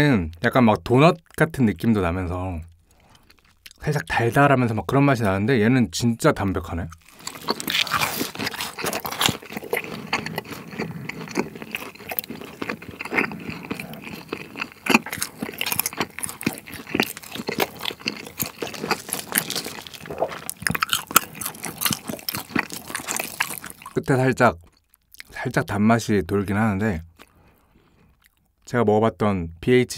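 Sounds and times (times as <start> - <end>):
crunchy chewing: 2.8 - 3.8, 6.9 - 25.3
wet mouth sounds: 7.0 - 25.3.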